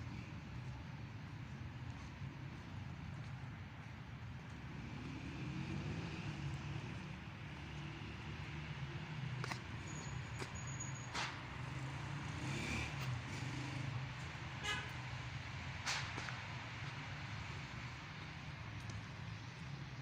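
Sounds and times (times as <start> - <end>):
city traffic: 0.0 - 20.0
car horn toot: 14.6 - 14.9.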